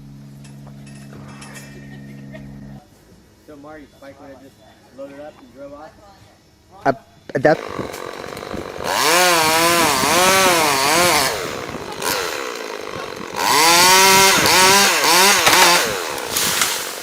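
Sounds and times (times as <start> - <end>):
chainsaw running: 7.6 - 17.0.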